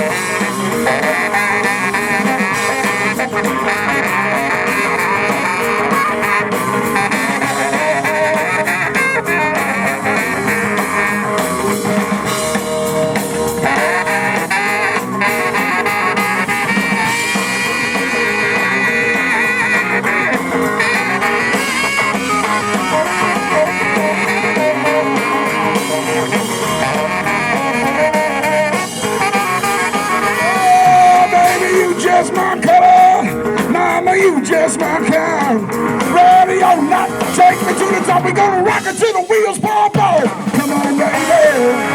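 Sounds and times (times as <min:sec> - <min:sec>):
held wavering lead notes: 0:00.0 - 0:37.8
blues-rock band playing: 0:00.0 - 0:41.9
person singing: 0:29.8 - 0:41.9.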